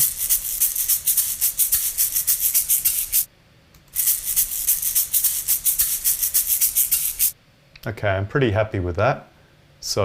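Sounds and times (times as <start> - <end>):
egg shaker shakes: 0.0 - 3.3, 3.9 - 7.4.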